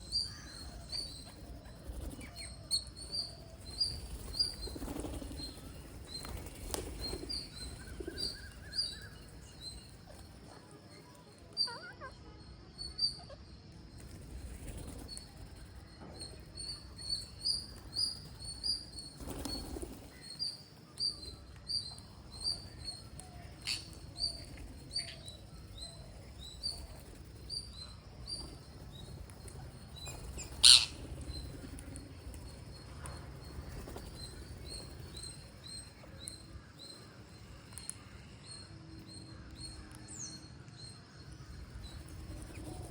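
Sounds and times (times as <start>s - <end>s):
parrots chirping: 30.6s - 31.0s.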